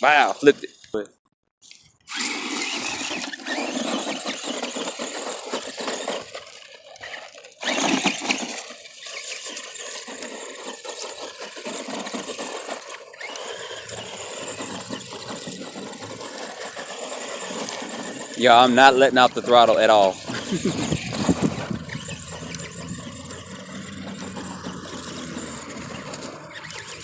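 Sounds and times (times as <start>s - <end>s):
toy truck electric motor whining: 0.0s - 27.0s.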